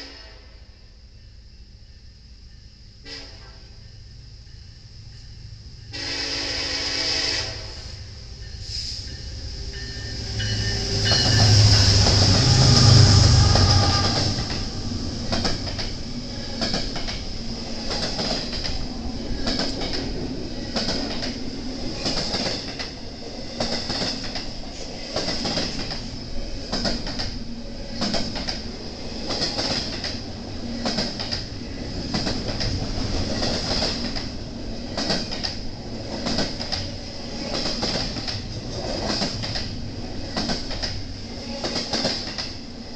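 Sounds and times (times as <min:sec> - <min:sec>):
diesel locomotives passing: 0:00.0 - 0:42.9
high-pitched wheel squeal: 0:08.6 - 0:14.7
wheels clicking over rail joints: 0:09.8 - 0:42.6.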